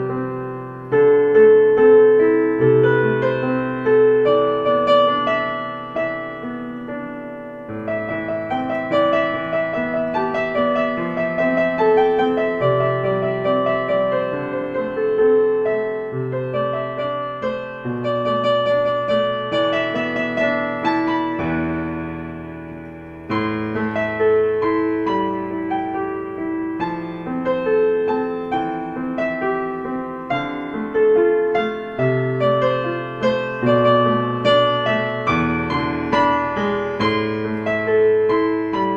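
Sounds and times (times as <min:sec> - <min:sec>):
slow gentle piano music: 0:00.0 - 0:38.9.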